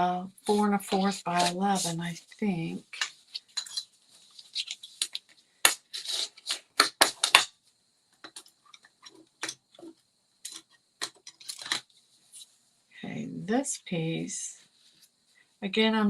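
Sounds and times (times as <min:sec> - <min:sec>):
paper rustling: 0:00.4 - 0:02.2, 0:02.9 - 0:07.4
crafting tools tapping and clicking: 0:04.6 - 0:07.5, 0:08.2 - 0:11.8.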